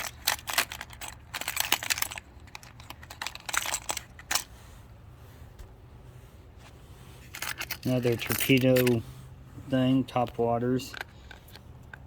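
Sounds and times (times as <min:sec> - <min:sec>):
fishing lures clicking and rattling: 0:00.0 - 0:04.5, 0:07.3 - 0:09.0.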